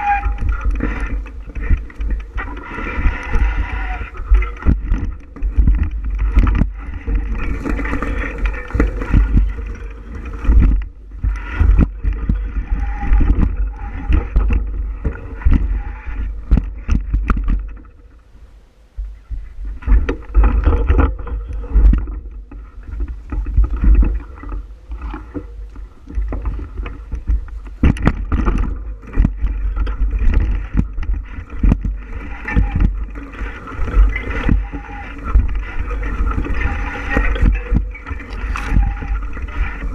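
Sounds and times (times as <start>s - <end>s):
bicycle knocks and rattles: 0.0s - 18.2s, 19.0s - 39.9s
wind rumbling on microphone: 0.0s - 39.9s.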